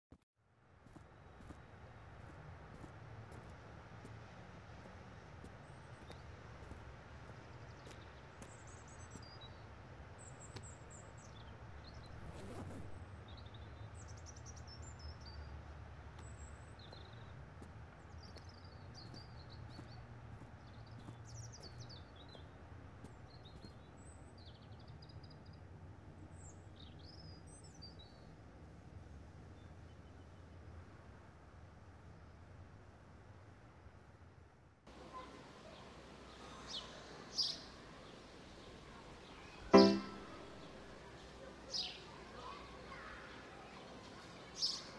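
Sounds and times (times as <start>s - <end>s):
birds chirping: 2.2s - 15.5s, 16.1s - 25.6s, 39.2s - 44.9s.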